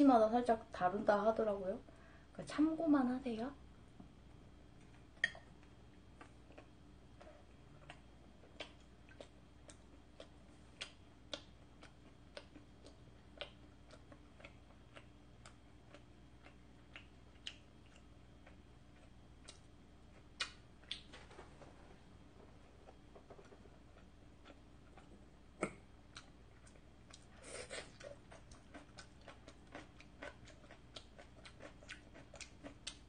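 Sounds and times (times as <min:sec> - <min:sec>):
chewing mouth clicks: 0:06.2 - 0:19.7, 0:24.0 - 0:33.0.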